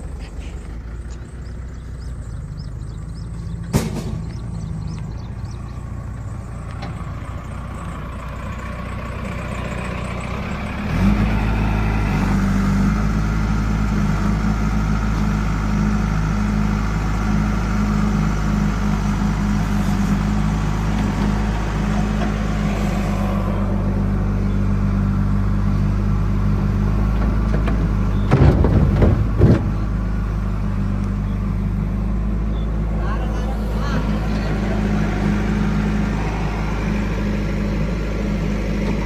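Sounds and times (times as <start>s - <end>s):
diesel engine running: 0.0s - 39.0s
loud knocks and clatter: 3.6s - 5.1s, 27.0s - 30.5s.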